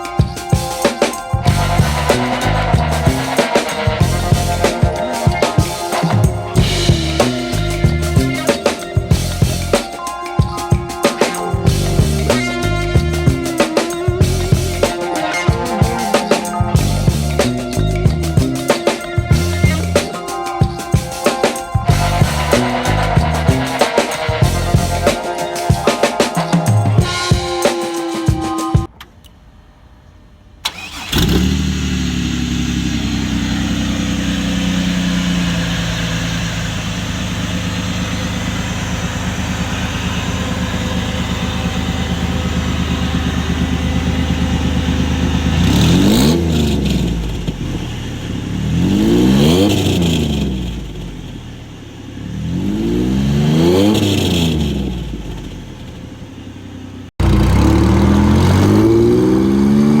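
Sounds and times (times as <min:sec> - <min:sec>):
car engine revving: 0:01.4 - 0:04.9, 0:30.6 - 1:00.0
car engine idling: 0:30.6 - 0:49.1, 0:49.8 - 0:52.6, 0:53.9 - 0:59.3.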